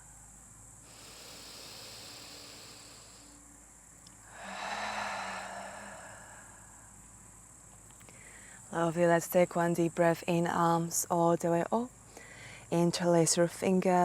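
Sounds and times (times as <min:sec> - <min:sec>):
crickets chirping: 0:00.0 - 0:14.0
woman breathing deeply: 0:00.8 - 0:03.4, 0:04.2 - 0:07.0, 0:08.1 - 0:08.7, 0:12.2 - 0:12.6.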